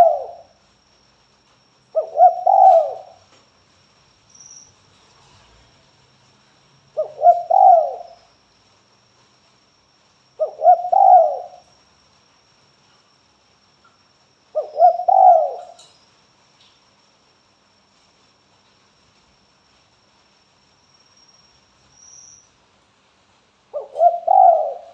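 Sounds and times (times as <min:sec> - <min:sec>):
dove cooing: 0:00.0 - 0:00.5, 0:01.9 - 0:03.2, 0:07.0 - 0:08.2, 0:10.4 - 0:11.6, 0:14.5 - 0:15.9, 0:23.7 - 0:24.9.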